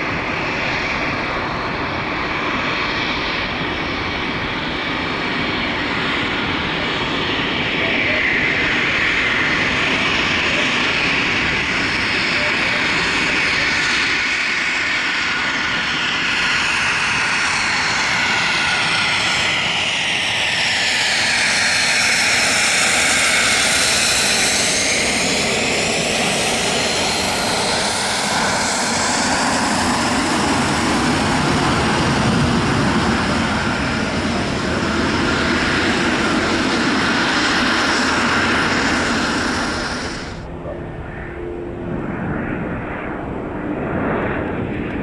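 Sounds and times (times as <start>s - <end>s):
jet aircraft passing: 0.0s - 45.0s.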